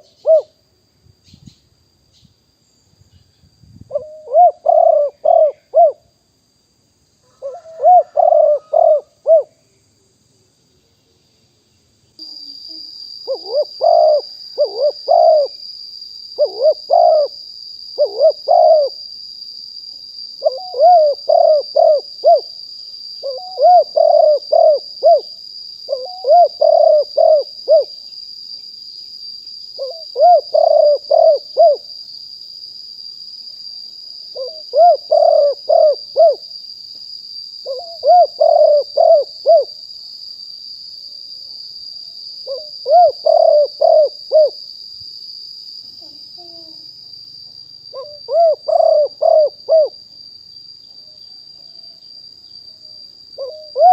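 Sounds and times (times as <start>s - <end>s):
dove cooing: 0.0s - 0.5s, 3.9s - 6.1s, 7.3s - 9.5s, 13.3s - 15.6s, 16.4s - 17.4s, 18.0s - 19.0s, 20.4s - 22.5s, 23.2s - 25.3s, 25.9s - 27.9s, 29.8s - 31.9s, 34.4s - 36.4s, 37.6s - 39.7s, 42.5s - 44.6s, 46.0s - 46.8s, 47.9s - 50.0s, 53.4s - 53.9s.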